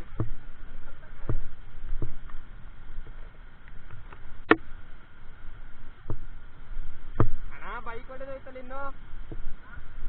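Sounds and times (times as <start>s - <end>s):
wind noise: 0.0s - 10.0s.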